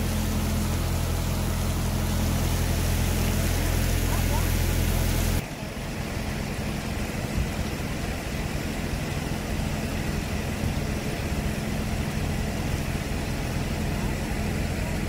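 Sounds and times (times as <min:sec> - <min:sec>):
fire engine motor idling: 0:00.0 - 0:15.0.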